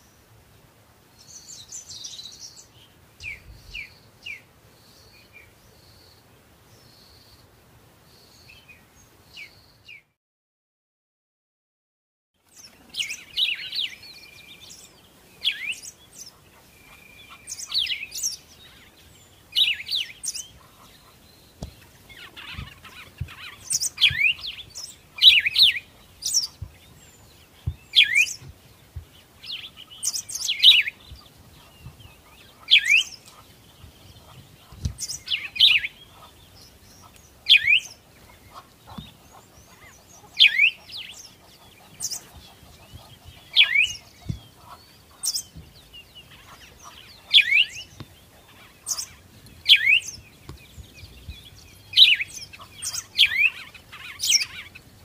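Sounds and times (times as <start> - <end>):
small birds chirping: 1.1 - 7.5, 12.4 - 55.0
soft low thumps: 26.4 - 29.4, 31.0 - 32.2.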